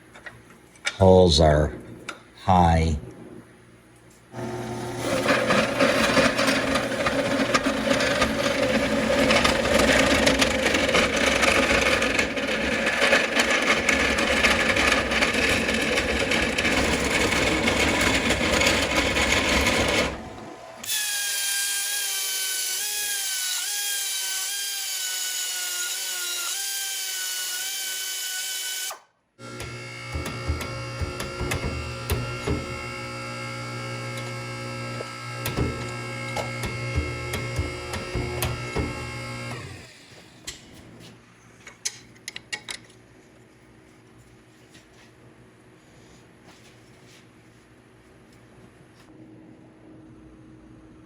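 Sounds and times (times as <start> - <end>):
power drill drilling steel: 4.4 - 40.1
high tool whine: 17.7 - 40.0.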